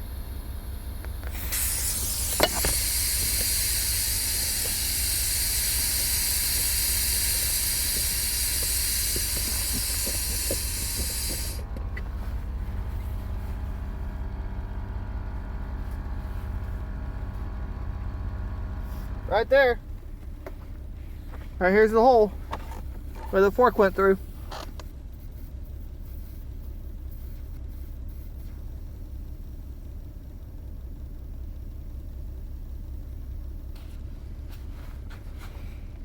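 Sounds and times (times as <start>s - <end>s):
compressed air hissing: 0.0s - 12.6s
low steady hum: 0.0s - 36.0s.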